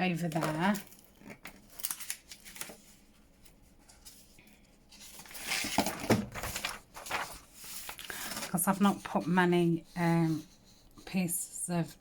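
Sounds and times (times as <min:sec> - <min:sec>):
paper rustling and scraping: 0:00.2 - 0:09.4.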